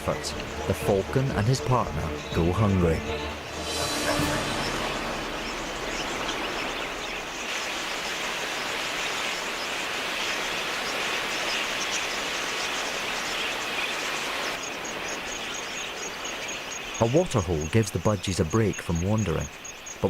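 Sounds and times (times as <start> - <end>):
flock of budgerigars chattering: 4.3 - 20.0.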